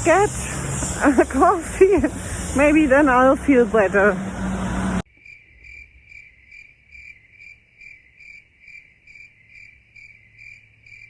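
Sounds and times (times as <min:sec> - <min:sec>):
cricket chirping: 0:00.0 - 0:02.7, 0:05.1 - 0:11.0.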